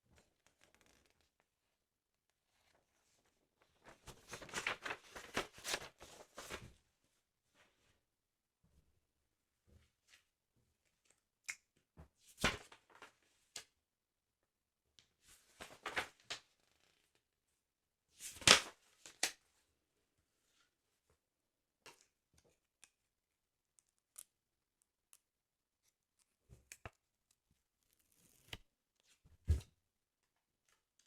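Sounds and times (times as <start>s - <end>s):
paper pages rustling: 3.8s - 6.7s, 15.6s - 16.4s.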